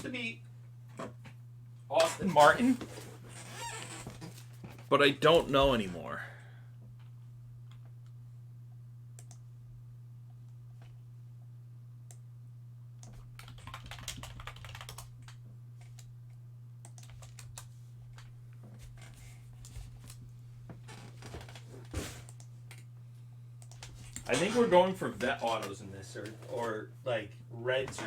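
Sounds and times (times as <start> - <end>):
low electrical hum: 0.0 - 28.0
computer keyboard typing: 13.0 - 16.1, 16.8 - 17.7.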